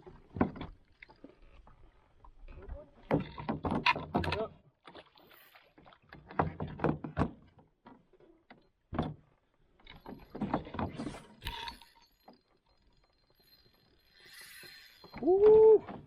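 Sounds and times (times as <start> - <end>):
fishing reel clicking: 11.4 - 15.7.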